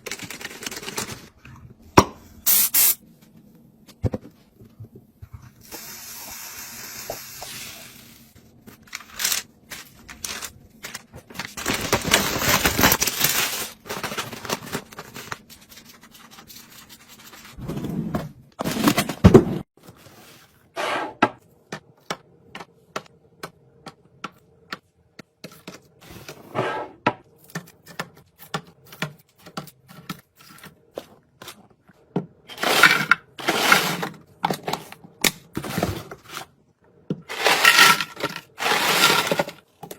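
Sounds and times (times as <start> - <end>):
plastic packaging rustling: 8.8 - 17.5
items clicking and knocking: 27.1 - 39.9.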